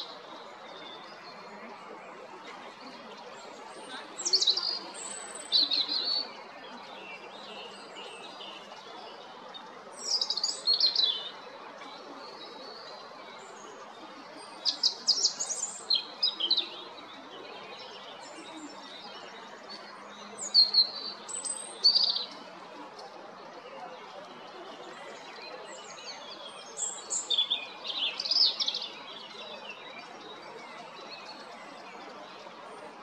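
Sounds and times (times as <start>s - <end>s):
robin singing: 4.1s - 6.3s, 10.0s - 11.3s, 14.4s - 16.9s, 20.4s - 22.4s, 25.8s - 29.9s.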